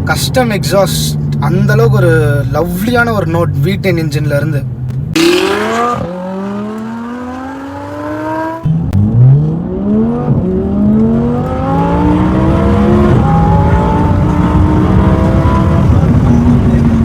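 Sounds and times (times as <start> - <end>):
car engine accelerating hard: 4.9 - 17.0.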